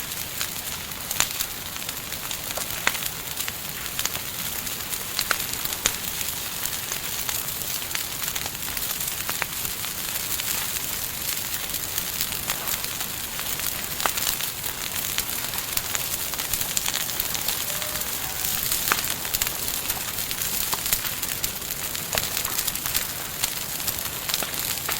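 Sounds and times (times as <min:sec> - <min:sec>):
campfire crackling: 0:00.0 - 0:24.9.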